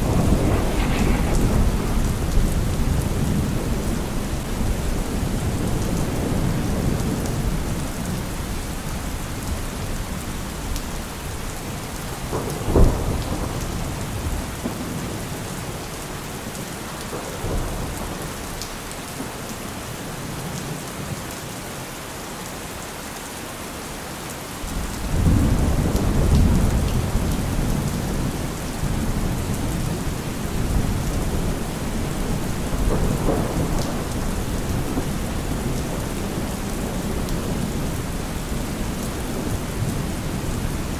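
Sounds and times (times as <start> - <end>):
thunder crack: 0.0 - 5.7
deep thunder rumble: 0.0 - 7.6
heavy rain falling: 0.0 - 40.9.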